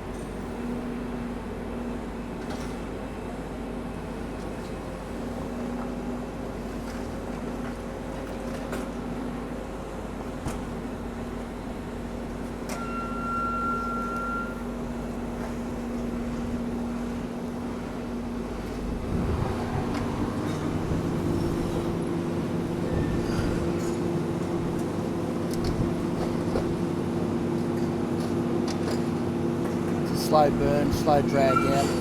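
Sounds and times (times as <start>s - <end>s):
excavator diesel engine running: 18.3s - 32.0s.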